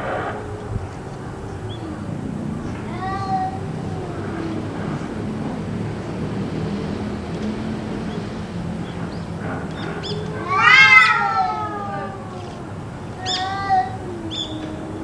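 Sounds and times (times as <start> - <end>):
cat yowling: 0.0 - 5.2, 10.0 - 15.0
steady low hum: 0.0 - 10.6
short cat calls: 10.3 - 14.6.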